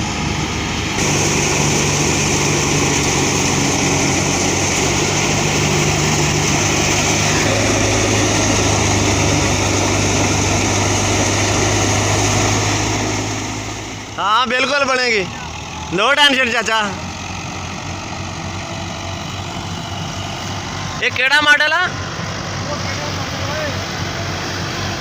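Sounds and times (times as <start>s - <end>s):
tractor engine running: 0.0s - 25.0s
thresher whirring hiss: 1.0s - 14.4s.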